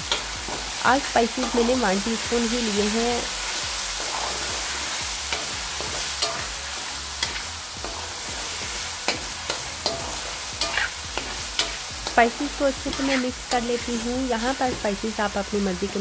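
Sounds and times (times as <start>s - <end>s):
onions sizzling in hot oil: 0.0s - 16.0s
spatula scraping a pan: 3.3s - 14.1s.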